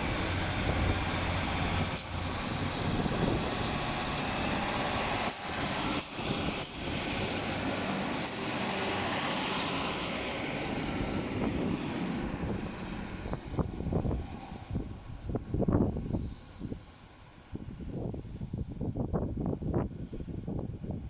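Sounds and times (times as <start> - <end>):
train passing close by: 0.0 - 18.6.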